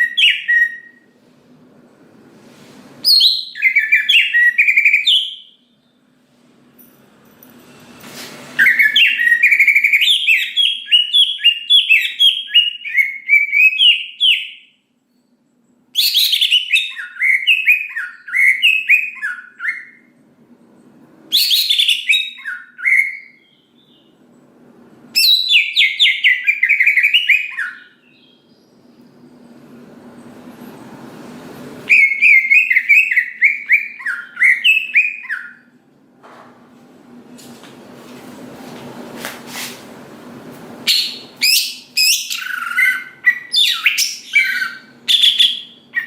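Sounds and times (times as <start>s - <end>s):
bird chirping and warbling: 0.0s - 1.1s, 3.0s - 6.0s, 8.6s - 14.7s, 16.0s - 20.1s, 21.3s - 24.2s, 25.2s - 29.4s, 31.9s - 35.7s, 40.8s - 46.0s.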